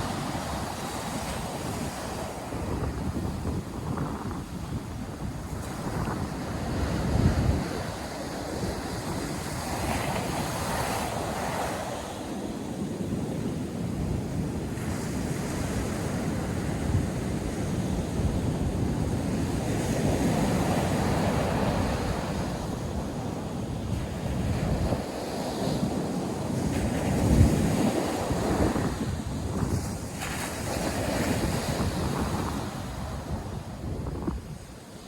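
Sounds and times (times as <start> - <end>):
wind buffeting microphone: 0.0 - 34.9
surf washing on sandy beach: 0.0 - 35.0.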